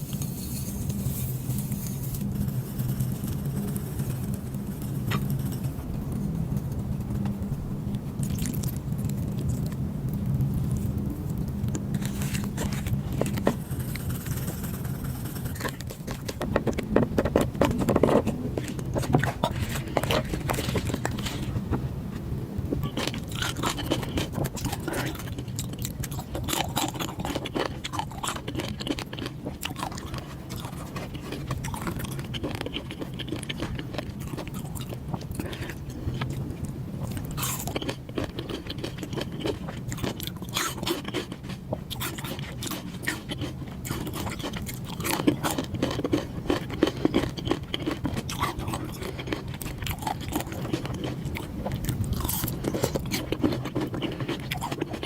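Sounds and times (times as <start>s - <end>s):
steady low hum: 0.0s - 55.0s
chewing and biting food: 8.2s - 9.8s, 11.8s - 21.8s, 22.8s - 55.0s.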